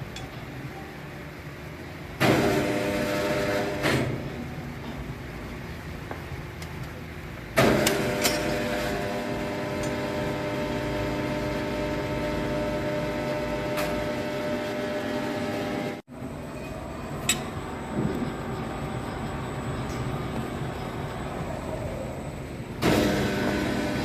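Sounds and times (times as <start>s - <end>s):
sawmill machinery humming: 7.6s - 24.0s.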